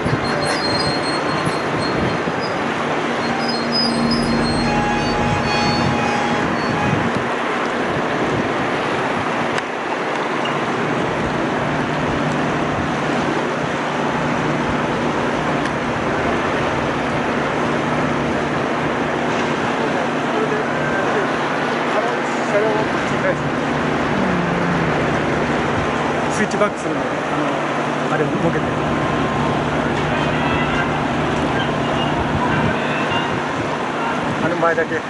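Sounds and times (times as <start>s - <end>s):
high wheel squeal: 0.0s - 7.5s
train running on rails: 0.0s - 35.0s.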